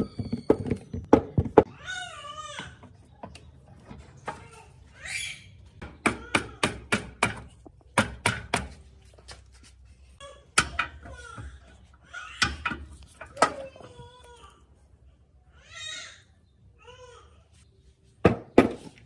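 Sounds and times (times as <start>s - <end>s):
hard objects knocking and clicking: 0.0s - 1.7s.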